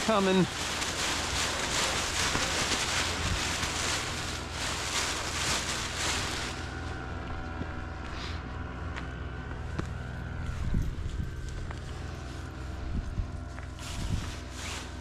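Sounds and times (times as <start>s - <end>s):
wind buffeting microphone: 2.1s - 4.6s, 12.8s - 14.5s.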